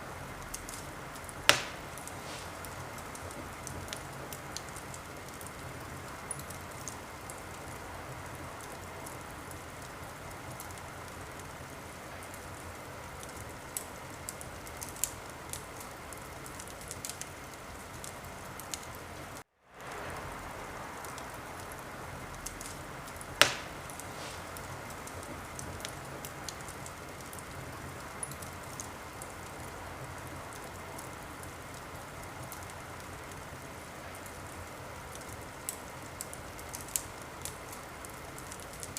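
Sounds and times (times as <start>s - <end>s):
fire crackling: 0.0s - 38.9s
wood fire hissing: 0.0s - 38.9s
loud pop from fire: 1.5s - 4.4s, 22.5s - 26.4s.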